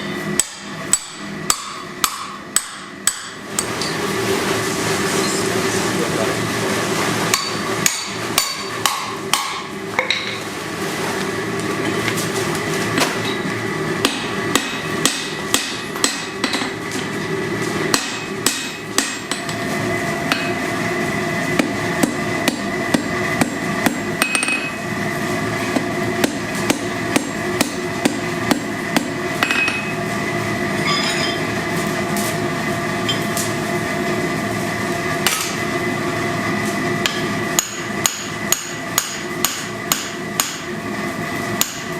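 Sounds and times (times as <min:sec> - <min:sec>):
hammer striking steel on anvil: 0:00.0 - 0:04.0, 0:07.3 - 0:10.4, 0:14.0 - 0:16.8, 0:17.9 - 0:19.6, 0:20.3 - 0:20.6, 0:21.6 - 0:24.8, 0:26.2 - 0:29.9, 0:37.0 - 0:40.7, 0:41.6 - 0:41.9
steady background hum: 0:00.0 - 0:41.9.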